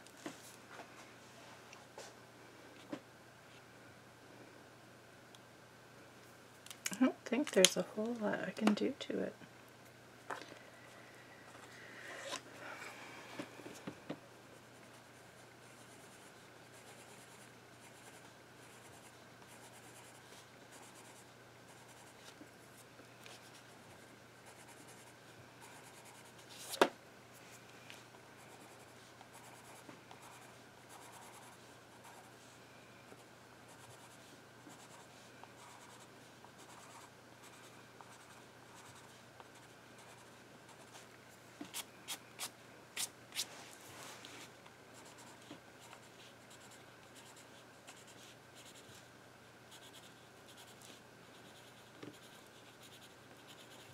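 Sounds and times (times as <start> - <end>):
steady low hum: 0.0 - 53.9
pencil scratching on paper: 28.5 - 32.3, 49.7 - 53.9.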